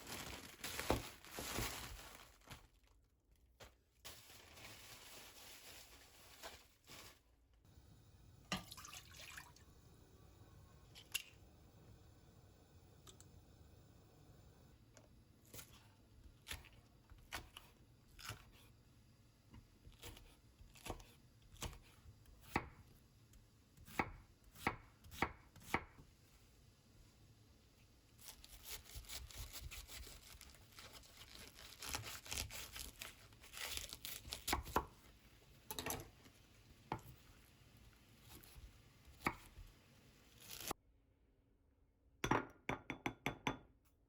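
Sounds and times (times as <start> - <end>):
rustling and crackling: 0.0 - 3.0.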